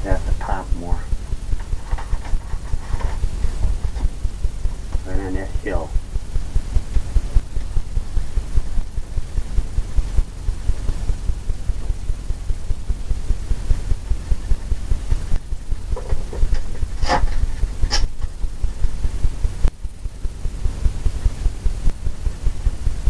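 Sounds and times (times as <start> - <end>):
low hum: 0.0 - 23.0
brush dabbing paint on canvas: 1.5 - 5.4.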